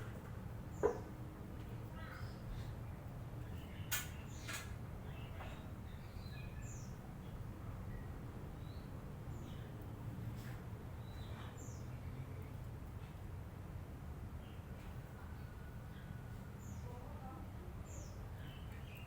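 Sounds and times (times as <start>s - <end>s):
lovebirds chirping and squeaking: 3.5s - 9.7s.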